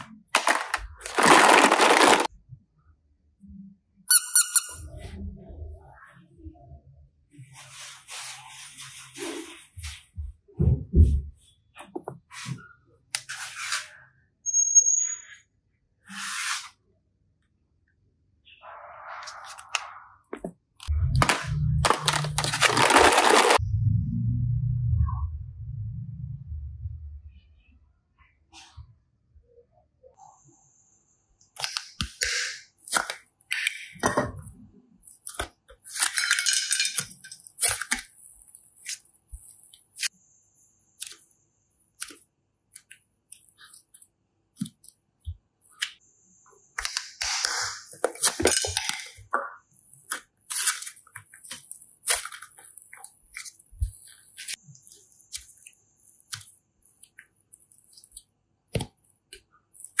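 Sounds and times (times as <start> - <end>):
slime crackling and popping: 49.9 - 60.0.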